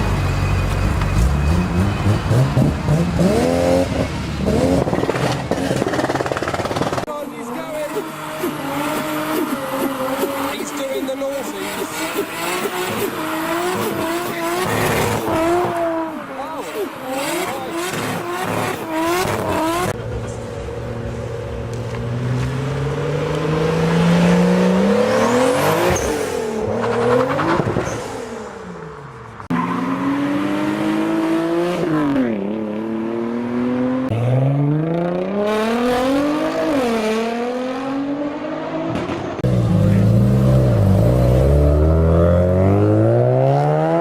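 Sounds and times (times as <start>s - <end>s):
car engines revving and accelerating: 0.0s - 44.0s.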